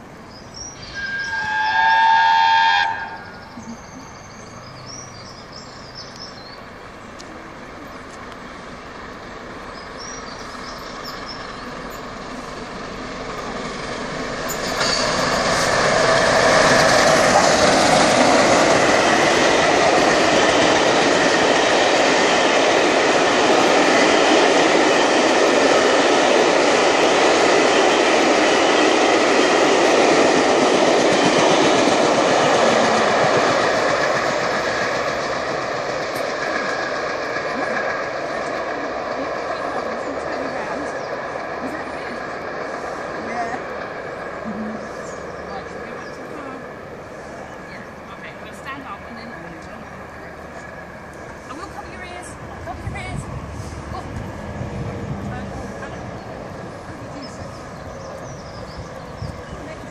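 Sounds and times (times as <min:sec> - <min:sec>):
steam locomotive passing: 0:00.0 - 0:59.9
steam whistle blast: 0:00.8 - 0:03.4
train wheels clickety-clack: 0:09.8 - 0:46.7.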